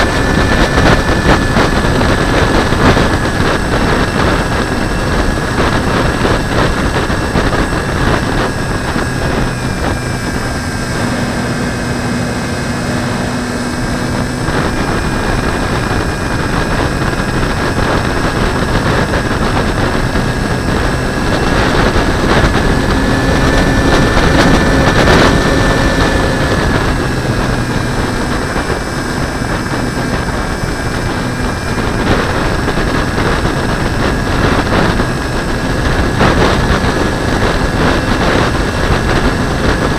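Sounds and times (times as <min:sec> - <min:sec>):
wind roaring over camera: 0:00.0 - 0:39.9.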